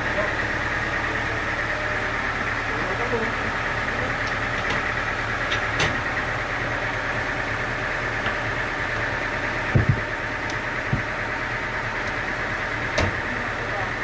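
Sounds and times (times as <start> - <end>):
sawmill engine running: 0.0 - 14.0
short knocks: 9.7 - 10.1.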